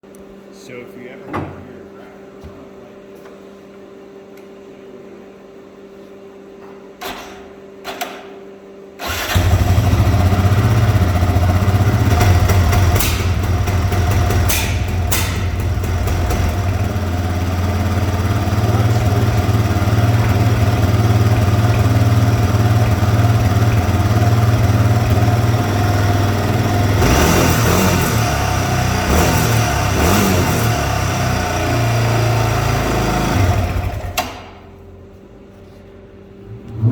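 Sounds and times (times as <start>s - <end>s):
atv engine starting and running: 9.0s - 34.6s.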